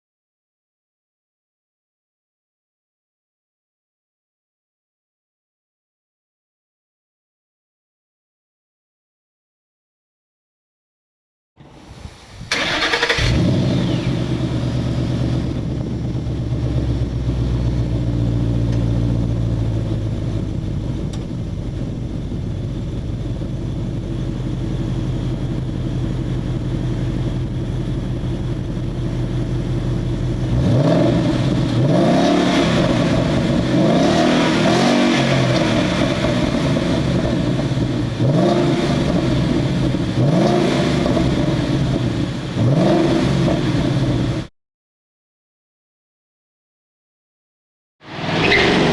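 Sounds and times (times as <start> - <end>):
car engine idling and revving: 11.6 - 44.5, 48.0 - 48.9.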